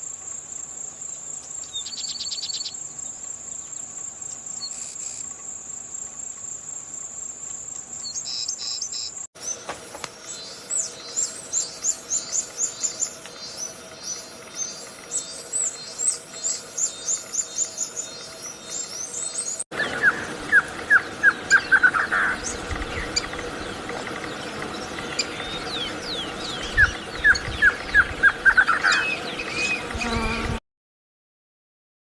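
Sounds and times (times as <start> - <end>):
songbirds singing: 1.0 - 5.2, 7.7 - 30.5.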